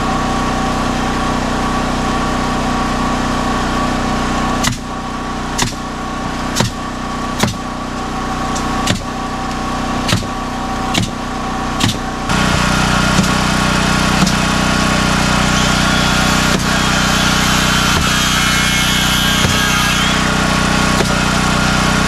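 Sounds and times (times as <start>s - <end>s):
loud steady machine noise: 0.0s - 22.0s
small engine running: 0.0s - 22.0s
sharp knocks: 7.4s - 7.6s, 10.9s - 11.2s, 17.8s - 20.2s.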